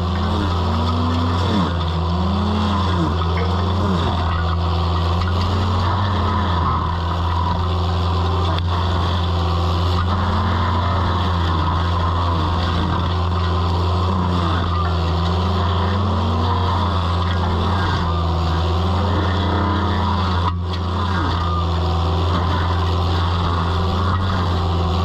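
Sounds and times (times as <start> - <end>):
skid steer engine running: 0.0 - 25.0
whine rising and falling: 0.0 - 25.0.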